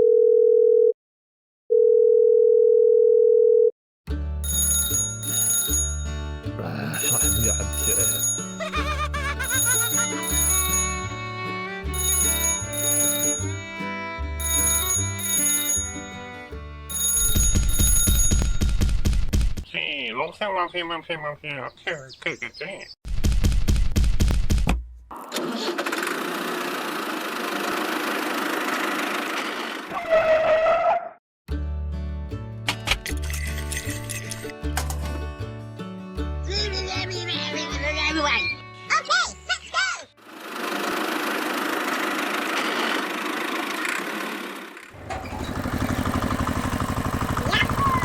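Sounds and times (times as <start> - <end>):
small engine running: 7.3 - 16.5, 25.2 - 29.9, 40.2 - 48.0
small engine chugging: 40.3 - 48.0.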